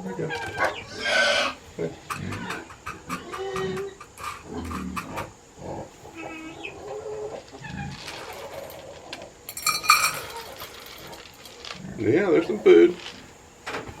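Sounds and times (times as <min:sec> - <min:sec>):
rustling: 0:06.8 - 0:14.0.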